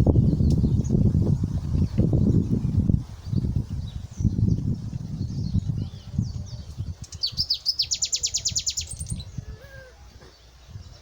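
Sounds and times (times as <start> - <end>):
songbird trilling: 5.2 - 11.0.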